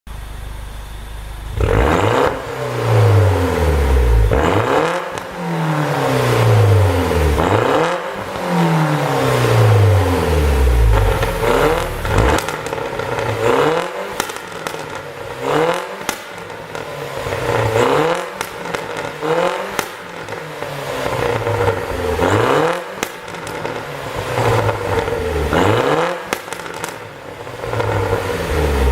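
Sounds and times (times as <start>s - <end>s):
car engine revving: 1.4s - 28.9s
exhaust pops and crackles: 10.9s - 28.9s.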